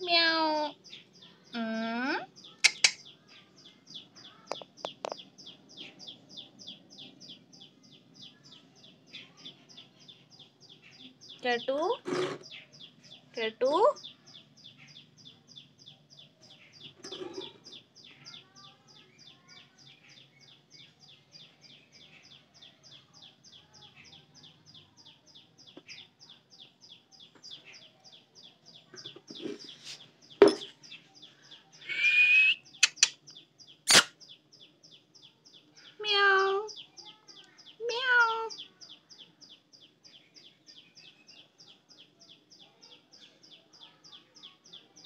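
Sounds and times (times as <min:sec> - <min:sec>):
small bird chirping: 0:00.0 - 0:45.0
sharp clicks: 0:02.6 - 0:03.0, 0:32.8 - 0:33.2, 0:33.9 - 0:34.1.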